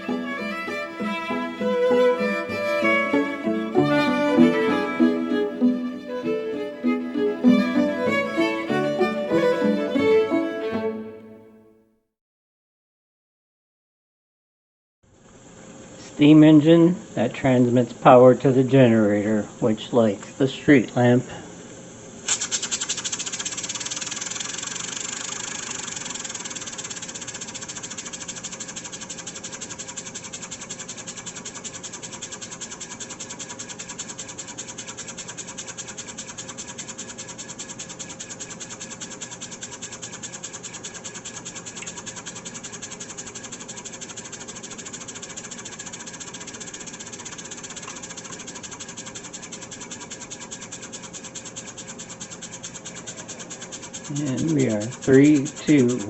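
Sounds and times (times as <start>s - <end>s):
model steam engine chuffing: 22.3s - 56.0s.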